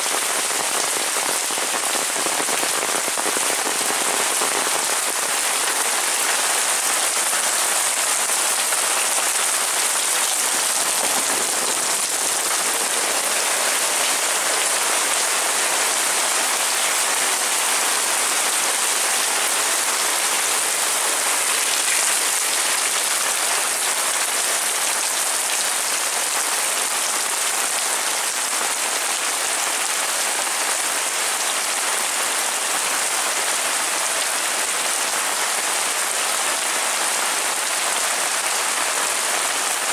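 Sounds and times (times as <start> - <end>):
heavy rain hissing: 0.0 - 28.8.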